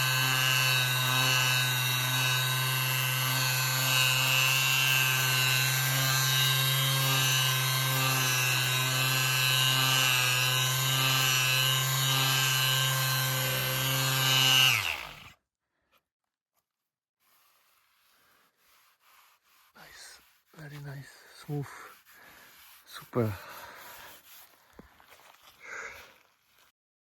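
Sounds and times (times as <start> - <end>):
orbital sander running: 0.0 - 15.3, 21.9 - 24.4.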